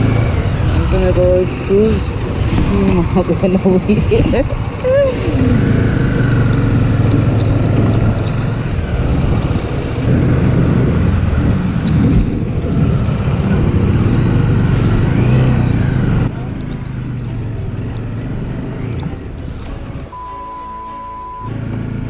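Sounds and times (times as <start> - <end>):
motorcycle engine running: 0.0 - 19.5
wind on microphone: 7.1 - 15.0.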